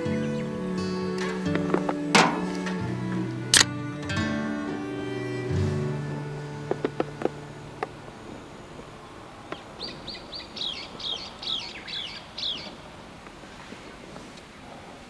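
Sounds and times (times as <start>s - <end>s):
small bird singing: 9.8s - 12.8s.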